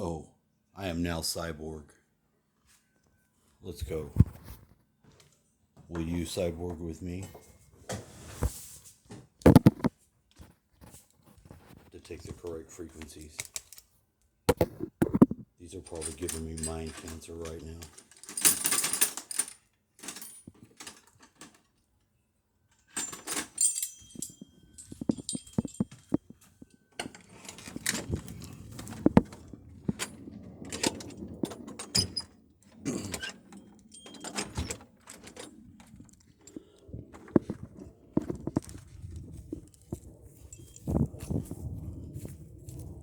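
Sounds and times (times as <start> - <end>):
objects clicking and jangling: 15.8 - 21.8, 22.7 - 41.4.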